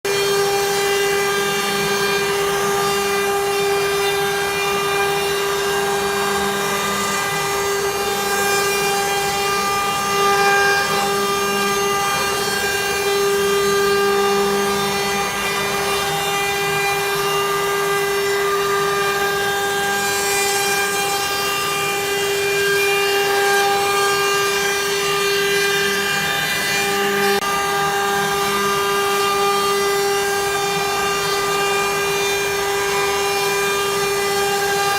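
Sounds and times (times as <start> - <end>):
bit cutting wood: 0.1 - 34.9
router spindle whining: 0.1 - 34.9.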